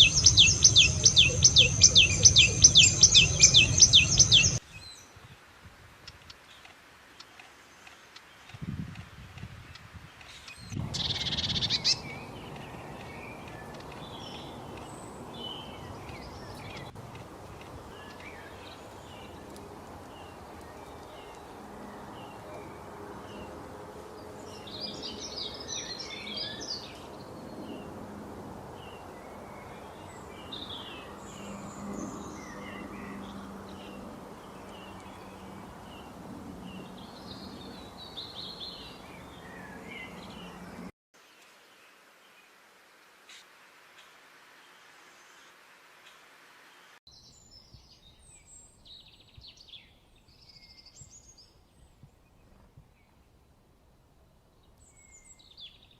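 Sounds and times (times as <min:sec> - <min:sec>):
small birds chirping: 0:00.0 - 0:05.1, 0:09.5 - 0:23.6.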